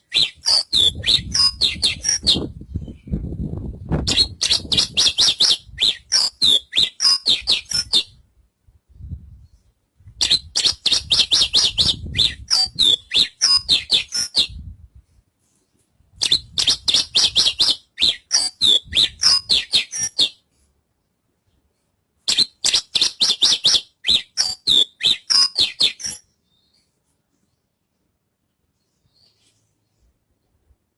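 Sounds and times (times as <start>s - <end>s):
bird chattering song: 0.0s - 3.2s, 4.1s - 8.2s, 10.2s - 14.6s, 16.2s - 20.4s, 22.3s - 26.9s.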